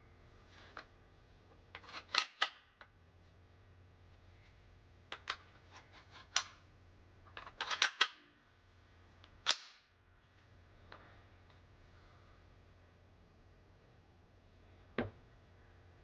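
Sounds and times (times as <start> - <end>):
gun metal parts clicking: 1.7 - 2.7, 7.3 - 8.2.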